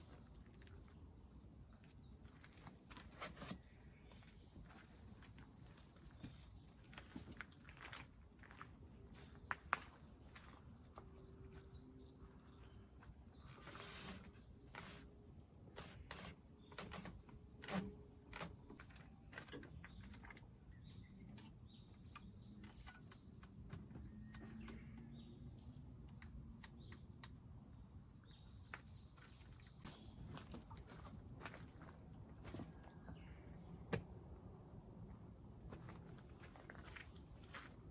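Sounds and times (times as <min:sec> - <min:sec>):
insects chorus: 0:00.0 - 0:37.9.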